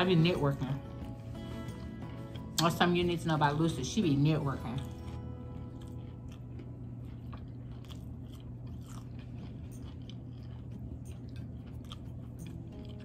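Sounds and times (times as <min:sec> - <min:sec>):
steady low hum: 0:00.0 - 0:13.0
person crunching onion rings: 0:04.8 - 0:13.0.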